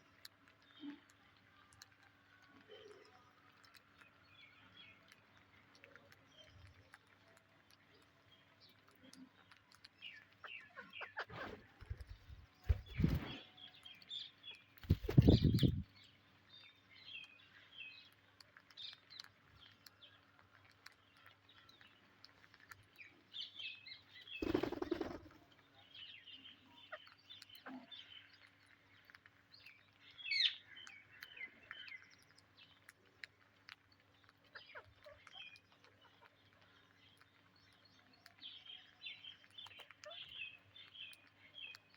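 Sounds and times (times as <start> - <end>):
parakeets chirping: 10.4 - 13.4.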